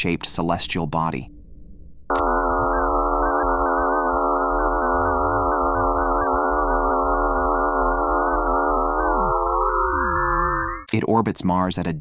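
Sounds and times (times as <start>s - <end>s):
eerie electronic drone: 2.1s - 10.9s.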